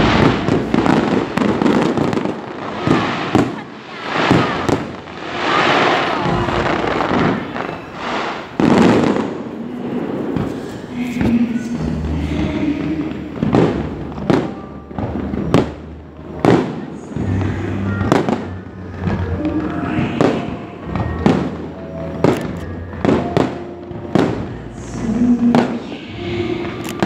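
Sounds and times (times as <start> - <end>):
fireworks bursting: 0.0 - 27.0
background music: 8.0 - 27.0.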